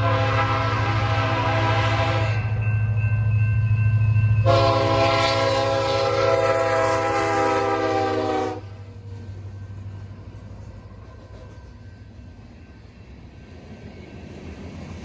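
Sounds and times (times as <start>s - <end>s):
locomotive air horn blast: 0.0s - 2.4s, 4.4s - 8.7s.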